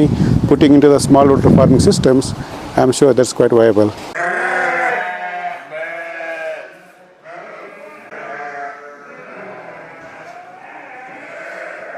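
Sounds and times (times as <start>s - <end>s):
sheep bleating: 4.2s - 11.9s.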